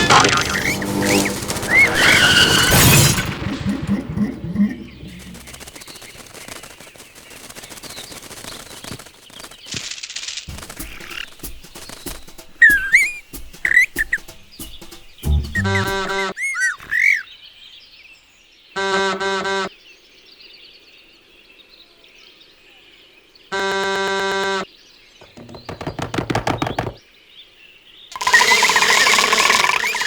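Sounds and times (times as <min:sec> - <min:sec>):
cartoon bird buzzy honks: 0:00.0 - 0:03.2, 0:15.3 - 0:16.8, 0:18.8 - 0:19.7
stuttering rattle: 0:00.0 - 0:09.6, 0:10.5 - 0:16.2, 0:28.1 - 0:30.0
chirp-like whistles: 0:00.5 - 0:03.0, 0:10.9 - 0:17.2.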